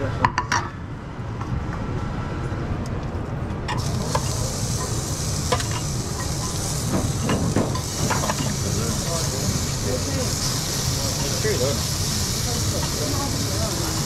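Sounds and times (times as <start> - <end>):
meat sizzling in a frying pan: 3.7 - 14.0.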